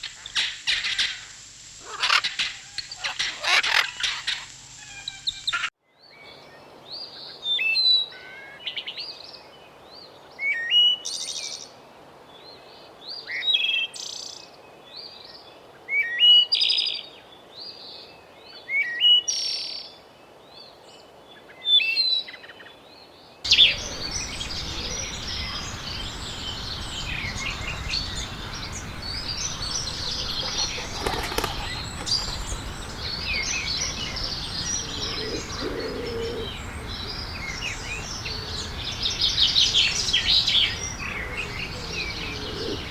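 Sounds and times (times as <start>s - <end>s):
steady background hiss: 0.0s - 5.5s, 23.5s - 42.9s
bird singing chirping phrases: 23.5s - 42.9s
chorus of many birds calling: 23.5s - 42.9s.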